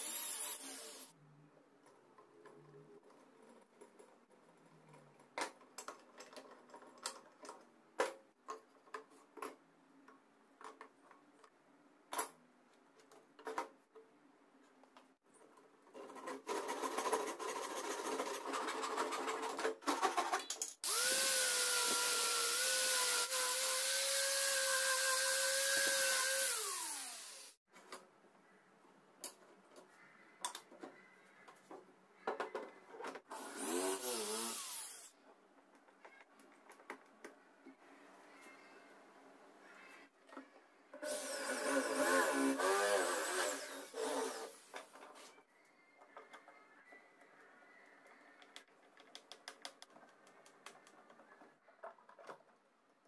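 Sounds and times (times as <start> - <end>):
electric power tool whining: 0.0 - 1.1, 20.8 - 27.6, 33.4 - 35.1, 41.0 - 44.6.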